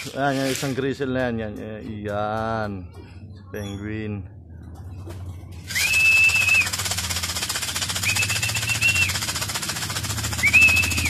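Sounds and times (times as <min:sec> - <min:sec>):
feed rattling in a tin: 0:00.0 - 0:02.6, 0:05.6 - 0:11.0
person whistling long notes: 0:05.7 - 0:06.8, 0:08.0 - 0:09.2, 0:10.3 - 0:11.0.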